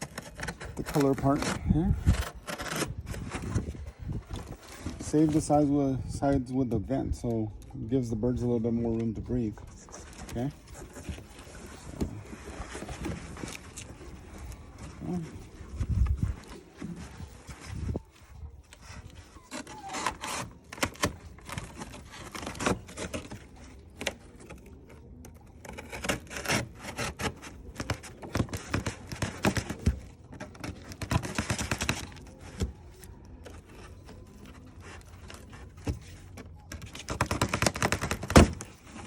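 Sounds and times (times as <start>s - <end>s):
knife cutting cardboard box: 0.0s - 5.5s, 18.7s - 39.0s
cardboard scraping and knocking: 0.0s - 5.6s, 9.9s - 18.1s, 18.8s - 24.7s, 25.6s - 39.0s.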